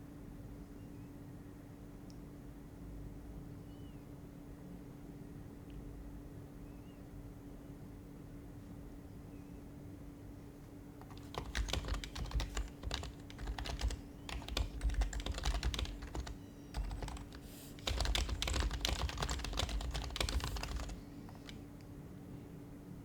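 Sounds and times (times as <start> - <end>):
faint steady hum: 0.0 - 23.0
soft keyboard typing: 11.0 - 21.7.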